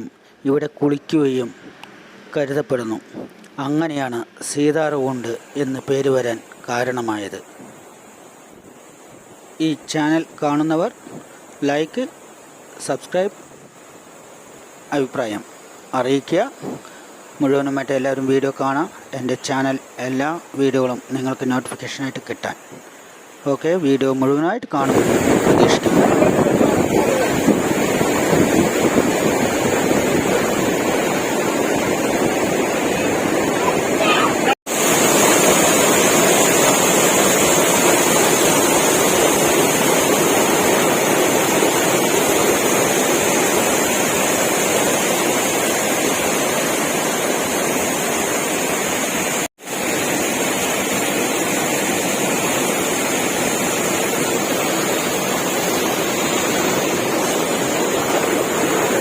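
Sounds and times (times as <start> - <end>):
waterfall pouring: 24.8 - 59.0.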